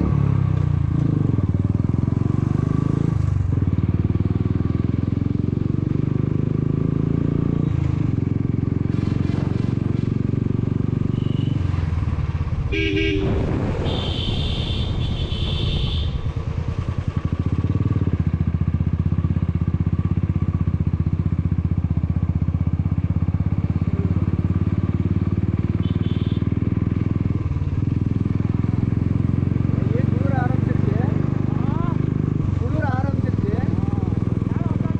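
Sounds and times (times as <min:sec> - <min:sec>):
motorcycle engine running: 0:00.0 - 0:34.9
horn beeping: 0:12.7 - 0:16.2, 0:25.8 - 0:26.5.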